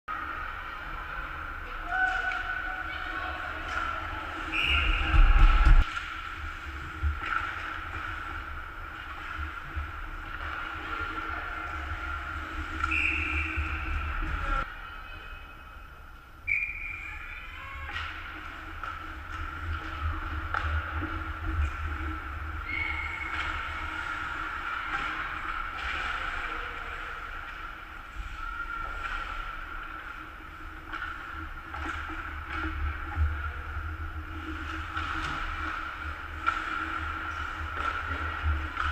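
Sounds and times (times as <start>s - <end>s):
low rumble: 3.3s - 14.7s.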